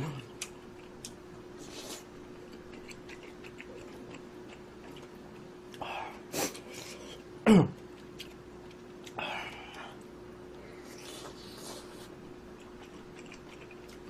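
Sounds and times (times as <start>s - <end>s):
faint steady hum: 0.0s - 14.0s
person chewing: 0.0s - 14.0s
person clearing throat: 7.4s - 7.8s.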